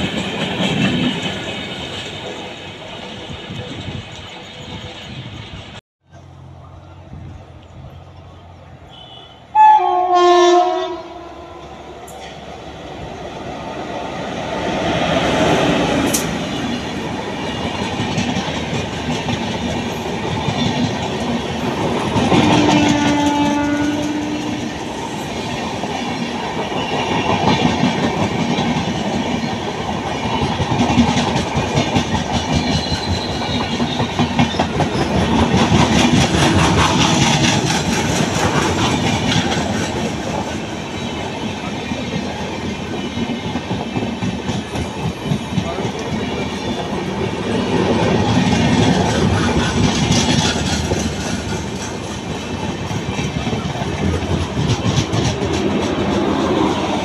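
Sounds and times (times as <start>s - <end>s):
train coaches passing: 0.0s - 57.0s
train horn blast: 8.8s - 12.0s, 22.3s - 24.9s
wheels clacking over rail joints: 14.1s - 57.0s.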